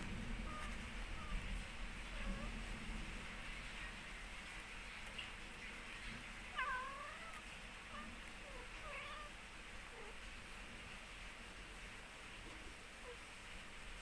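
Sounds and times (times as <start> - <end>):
kittens mewing: 0.0 - 2.8, 6.5 - 10.3.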